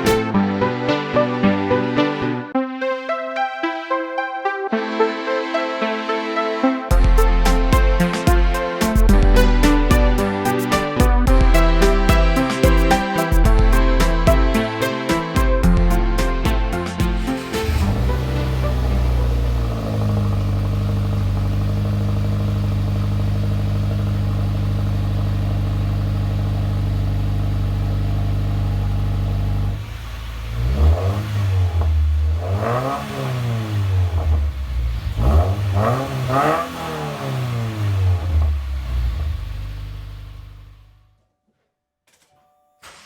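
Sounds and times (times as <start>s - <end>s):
car engine idling and revving: 6.9s - 41.2s.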